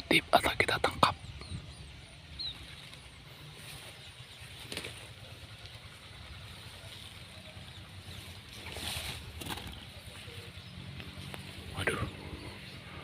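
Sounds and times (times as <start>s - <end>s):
rustling in grass: 2.4s - 11.9s.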